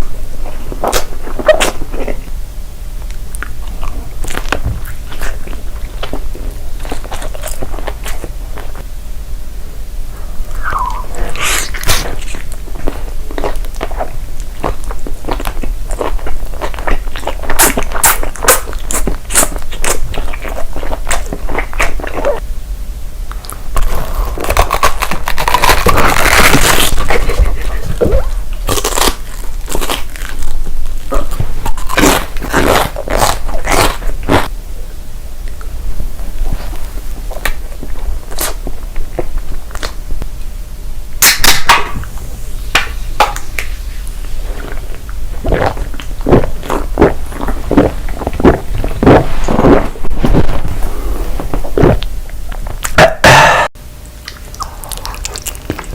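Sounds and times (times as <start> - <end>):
crunching crisp food: 3.1 - 8.9, 10.6 - 22.4, 23.3 - 34.5, 42.8 - 53.4, 54.1 - 55.9.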